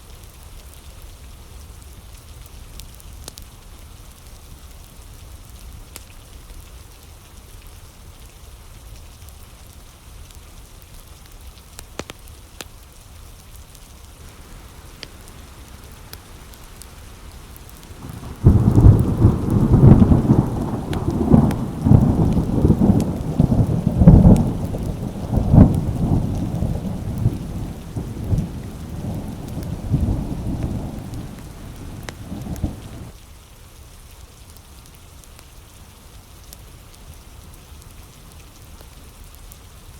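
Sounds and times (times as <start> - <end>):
steady rain falling: 0.0 - 39.9
thunder clap and rumbling: 14.2 - 33.2.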